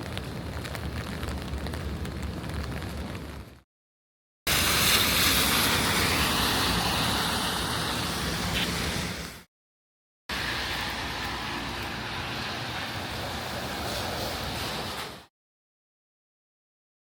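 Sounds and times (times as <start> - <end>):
rain on pavement: 0.0 - 3.6, 4.5 - 9.4, 10.3 - 15.3
traffic on wet road: 4.5 - 9.4, 10.3 - 15.2.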